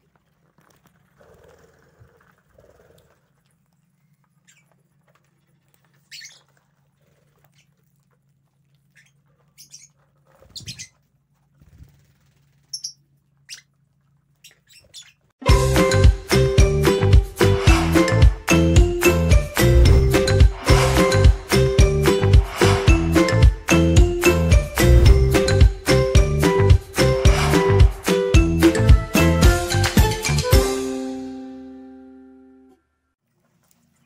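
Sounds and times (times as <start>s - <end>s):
lovebirds chirping: 3.9s - 4.8s, 6.0s - 6.5s, 8.9s - 11.0s, 12.6s - 13.7s, 14.4s - 15.3s.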